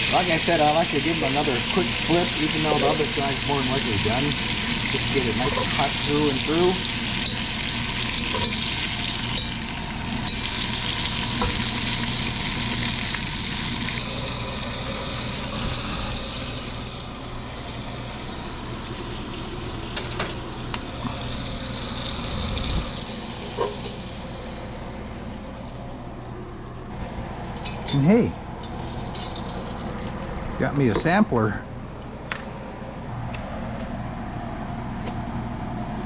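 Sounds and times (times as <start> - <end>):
meat sizzling in hot oil: 0.0 - 24.6.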